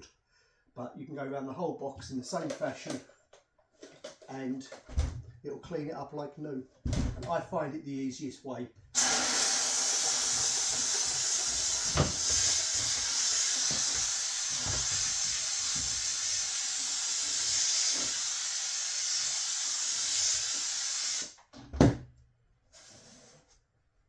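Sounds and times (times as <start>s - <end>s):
steam cleaner jet hissing: 9.0s - 21.4s.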